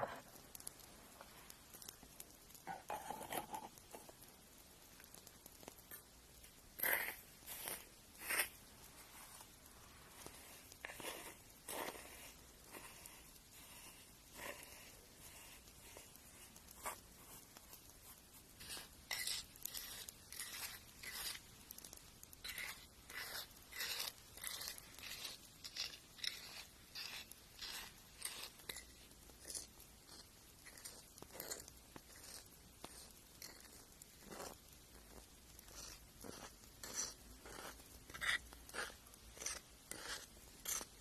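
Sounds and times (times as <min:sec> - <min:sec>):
nail file scratching: 0:06.8 - 0:08.6, 0:10.2 - 0:41.0.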